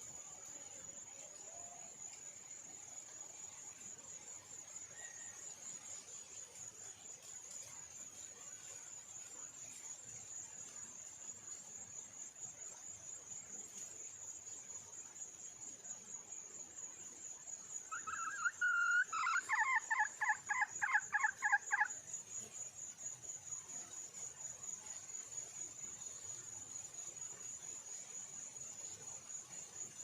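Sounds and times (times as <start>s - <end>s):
hen calling and clucking: 17.9s - 21.9s.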